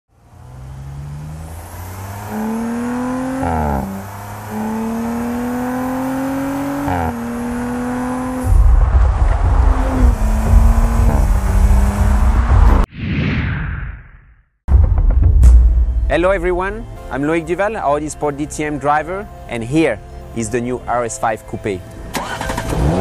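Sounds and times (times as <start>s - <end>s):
car engine accelerating hard: 0.1s - 12.9s, 22.1s - 23.0s
loud low rumble: 8.4s - 12.9s, 14.7s - 17.1s.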